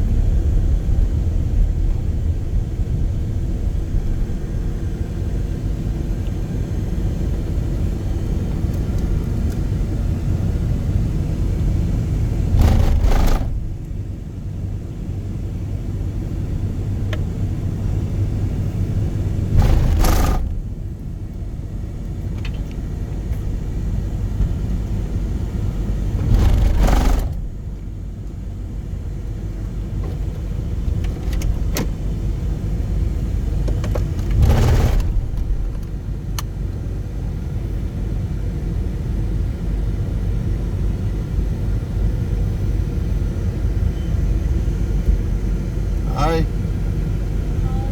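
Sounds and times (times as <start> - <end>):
car road and engine rumble: 0.0 - 47.9.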